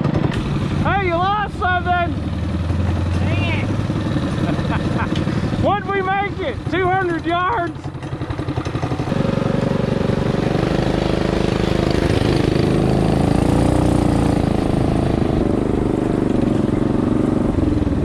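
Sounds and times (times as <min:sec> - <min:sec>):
mini bike engine revving: 0:00.0 - 0:18.0.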